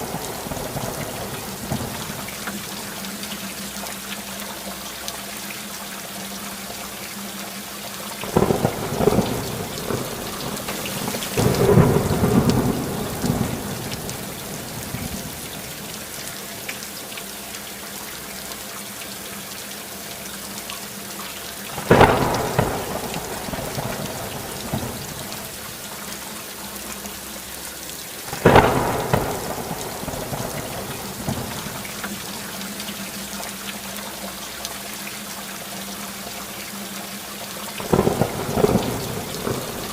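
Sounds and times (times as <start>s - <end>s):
steady rainfall: 0.0s - 39.9s
rolling thunder: 8.2s - 15.9s, 21.8s - 25.6s, 28.3s - 32.0s, 37.8s - 39.9s
sharp thunderclaps: 8.3s - 15.8s, 21.8s - 25.5s, 28.3s - 31.8s, 37.9s - 39.9s.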